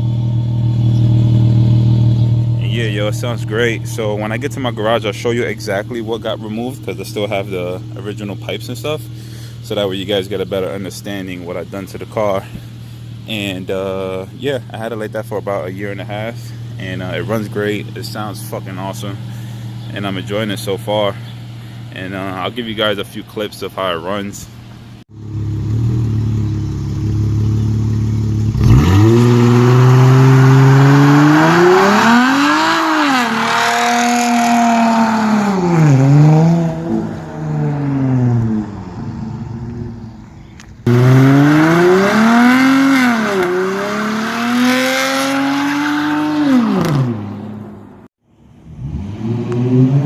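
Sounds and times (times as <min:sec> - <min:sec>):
car engine accelerating hard: 0:25.1 - 0:40.1, 0:40.8 - 0:48.0, 0:48.6 - 0:50.0.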